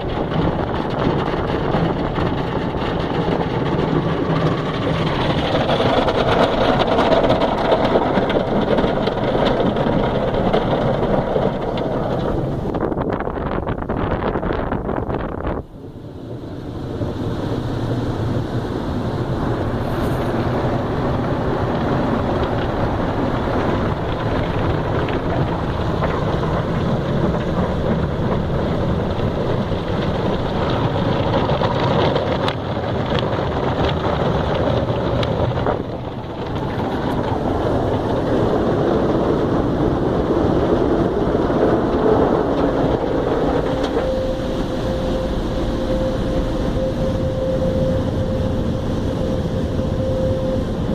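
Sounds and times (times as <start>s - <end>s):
car wash water spray: 0.0s - 13.0s, 16.0s - 50.9s
steady hum: 35.5s - 50.9s.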